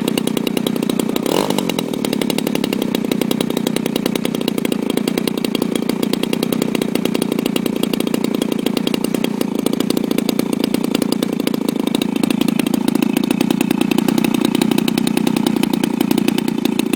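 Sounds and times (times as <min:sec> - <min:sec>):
model airplane engine buzzing: 0:00.0 - 0:16.9.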